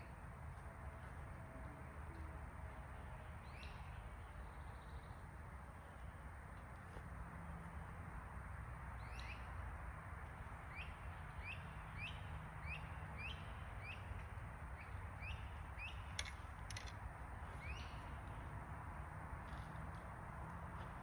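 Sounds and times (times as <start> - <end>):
bird chirping: 9.0 - 9.6, 10.7 - 16.9, 17.5 - 18.2
sharp clicks: 16.1 - 17.0.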